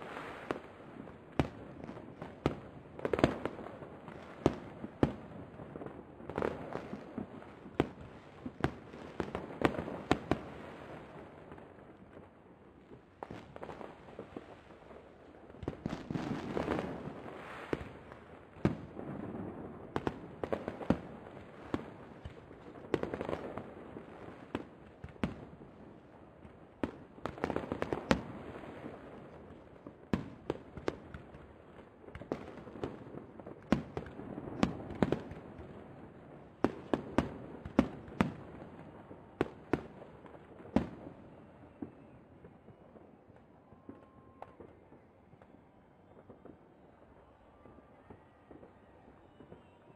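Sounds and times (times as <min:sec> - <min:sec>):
fireworks bursting with sharp bangs: 0:00.0 - 0:49.9.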